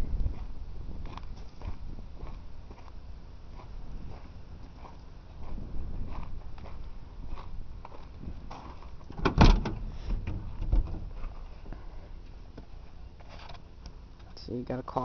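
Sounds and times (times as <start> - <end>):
loud thud: 9.2 - 11.1.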